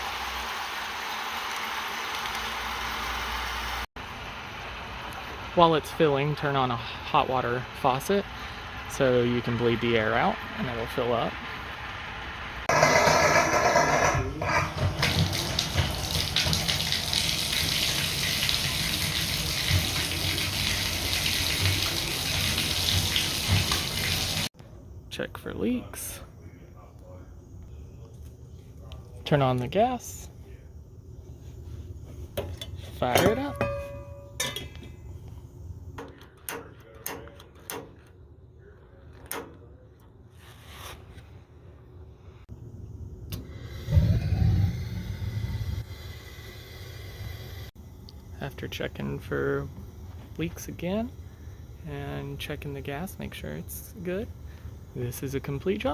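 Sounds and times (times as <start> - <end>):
faucet water rushing: 14.4 - 24.5
igniter clicks: 32.4 - 38.2.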